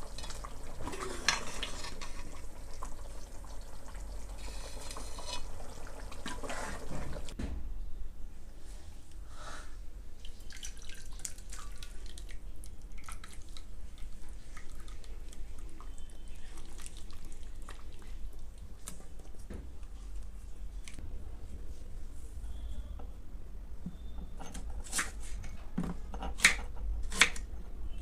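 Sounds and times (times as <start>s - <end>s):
water dripping and splashing: 10.2s - 19.0s.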